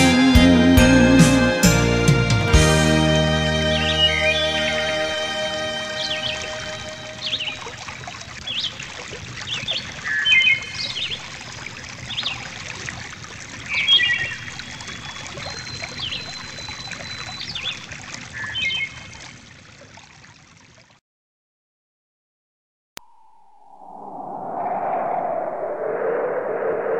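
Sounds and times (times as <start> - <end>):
trickle of running water: 7.0 - 21.0.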